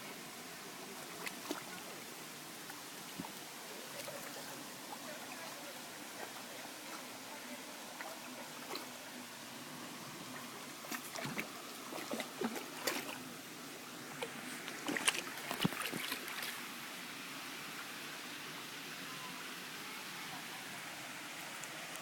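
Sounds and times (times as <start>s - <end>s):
water trickling: 0.7s - 16.8s.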